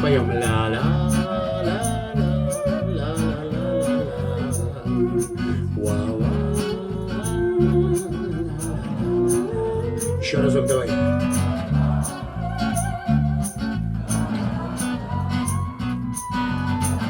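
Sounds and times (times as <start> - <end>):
bass line: 0.0 - 17.0
plucked guitar: 0.0 - 17.0
percussion beat: 8.0 - 17.0.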